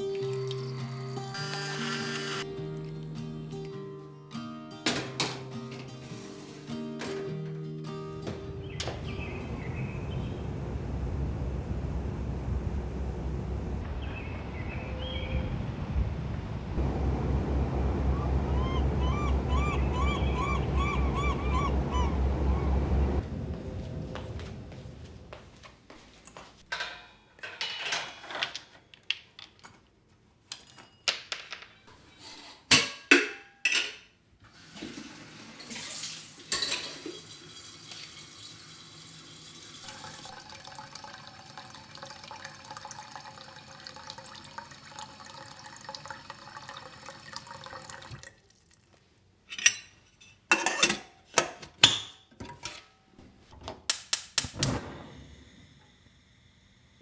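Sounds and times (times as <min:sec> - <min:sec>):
tap running: 0:15.4 - 0:25.5
dishes clinking in a sink: 0:26.7 - 0:28.6, 0:32.7 - 0:34.2, 0:35.6 - 0:38.1, 0:49.4 - 0:53.0.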